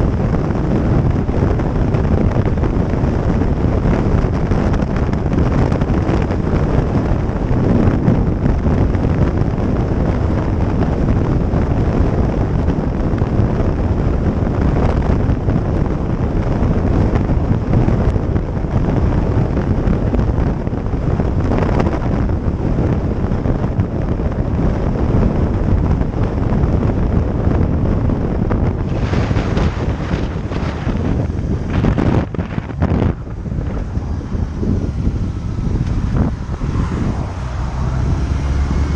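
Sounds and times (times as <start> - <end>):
road noise: 0.0 - 38.9
wind buffeting microphone: 0.0 - 38.9.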